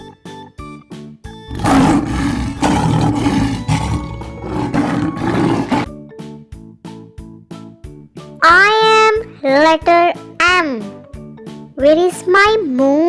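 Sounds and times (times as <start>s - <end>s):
cheerful children's music: 0.0s - 1.4s, 5.9s - 13.0s
lion roaring: 1.5s - 5.9s.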